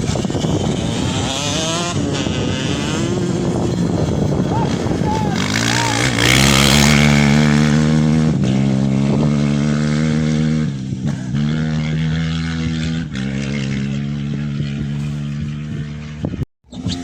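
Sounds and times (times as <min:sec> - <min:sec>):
rally vehicle engine high revs: 0:00.0 - 0:17.0.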